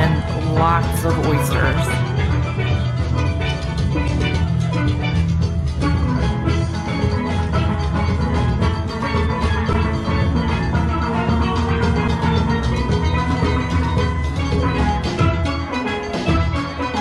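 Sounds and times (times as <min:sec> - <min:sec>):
steel drum band playing: 0:00.0 - 0:17.0.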